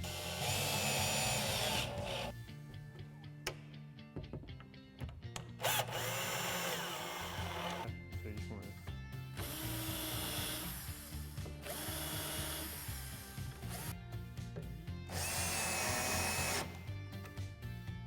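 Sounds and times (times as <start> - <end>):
power drill running: 0.0 - 2.3, 5.6 - 7.9, 9.4 - 14.0, 15.1 - 16.9.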